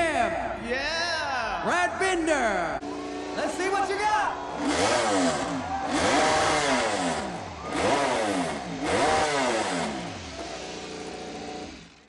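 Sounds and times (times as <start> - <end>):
motorcycle engine revving: 2.8 - 12.0.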